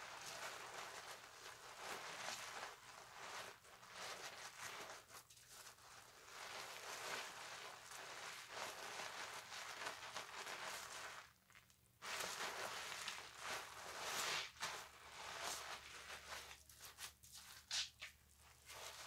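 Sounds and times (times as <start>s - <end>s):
loofah scrubbing soap: 0.0s - 19.0s.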